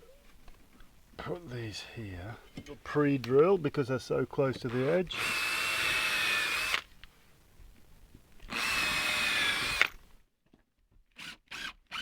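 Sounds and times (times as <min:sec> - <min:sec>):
power drill motor whine: 0:04.8 - 0:06.8, 0:08.5 - 0:09.9, 0:11.2 - 0:12.0.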